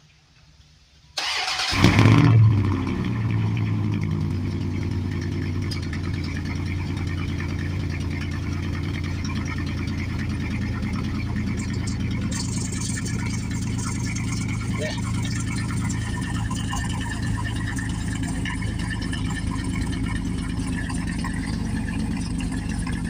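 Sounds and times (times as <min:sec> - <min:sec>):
engine starting and idling: 0:01.2 - 0:23.0
starter cranking: 0:03.6 - 0:23.0.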